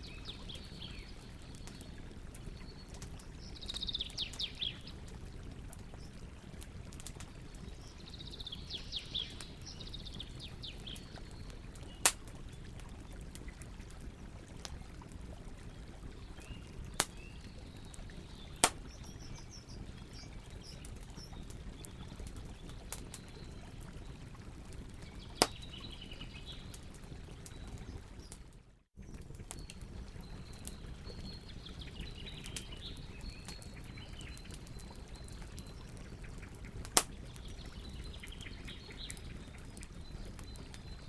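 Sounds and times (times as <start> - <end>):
birds chirping: 0.0 - 5.0
campfire crackling and popping: 0.0 - 41.0.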